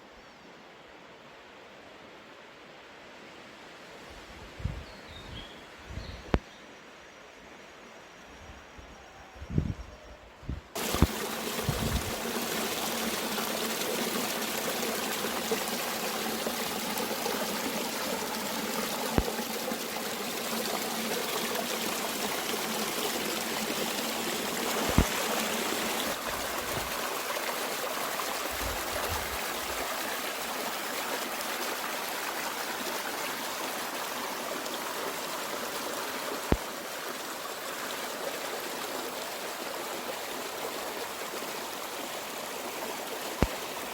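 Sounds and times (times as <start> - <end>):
mountain stream running: 10.8 - 43.9.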